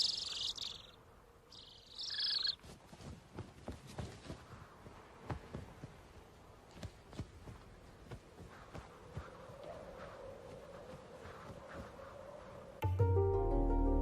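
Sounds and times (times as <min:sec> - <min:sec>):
bird's rapidly rattling call: 0:00.0 - 0:00.9, 0:01.5 - 0:02.6
faint scattered ticks: 0:00.0 - 0:02.7.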